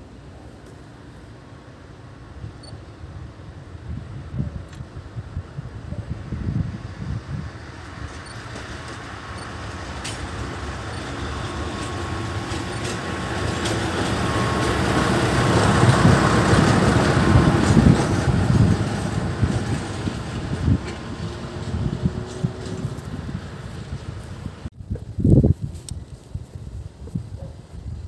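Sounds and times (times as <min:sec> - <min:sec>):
diesel locomotive engine: 0:00.0 - 0:25.2
wheels on rails: 0:07.7 - 0:25.2.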